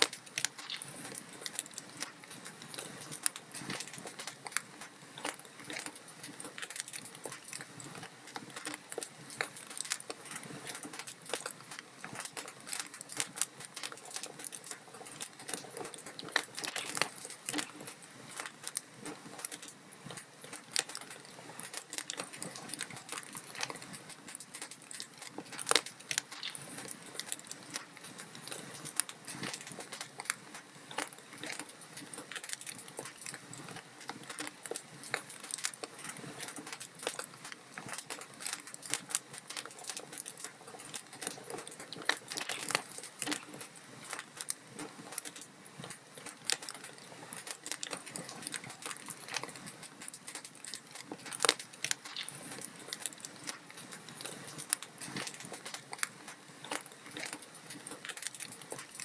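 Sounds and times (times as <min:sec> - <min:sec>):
log fire crackling: 0:00.0 - 0:59.0.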